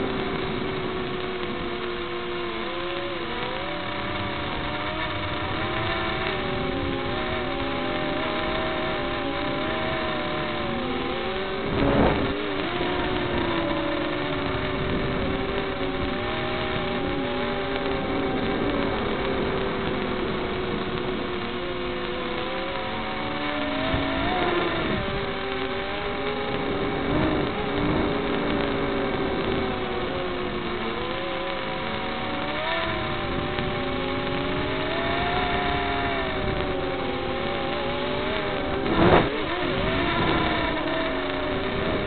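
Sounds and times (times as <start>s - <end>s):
quadcopter motors whining: 0.0s - 42.0s.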